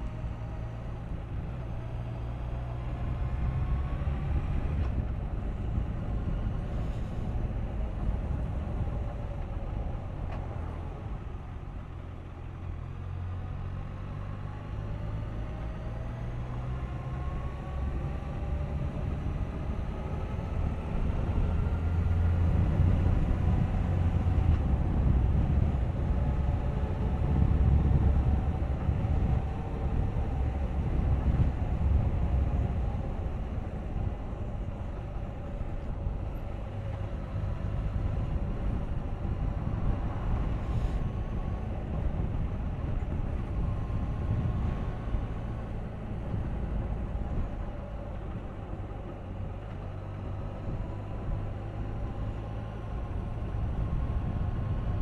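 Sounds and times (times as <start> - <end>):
heavy low rumble: 16.7 - 55.0.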